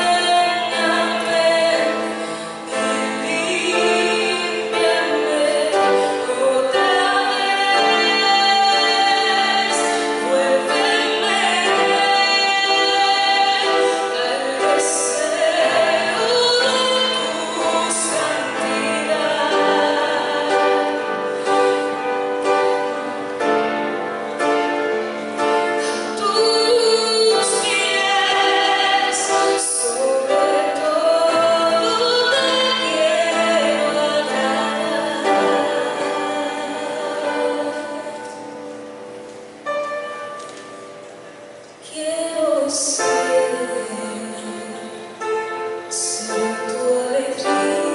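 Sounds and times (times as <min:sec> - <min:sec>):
woman singing praise song: 0:00.0 - 0:22.1, 0:25.8 - 0:38.5
musical accompaniment: 0:00.0 - 0:47.9.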